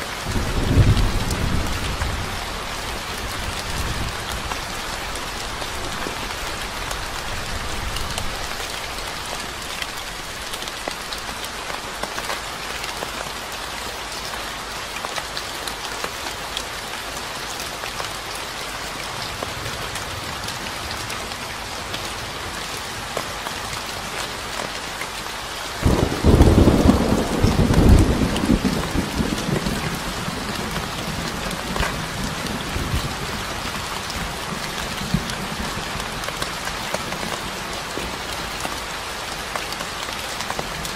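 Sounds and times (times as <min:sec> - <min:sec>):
steady rain falling: 0:00.0 - 0:40.9
low rumble of thunder: 0:00.2 - 0:04.7, 0:25.8 - 0:36.0.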